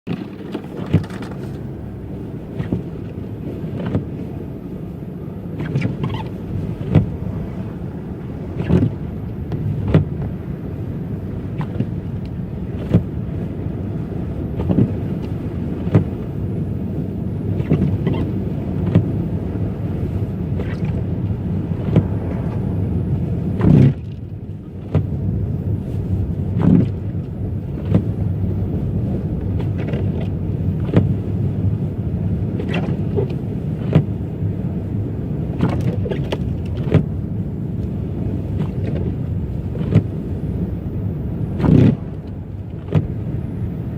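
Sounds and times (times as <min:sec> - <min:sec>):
car tyres and engine rumbling: 0:00.0 - 0:43.9
car jolting over bumps: 0:00.1 - 0:04.2, 0:20.5 - 0:25.6, 0:38.3 - 0:43.9.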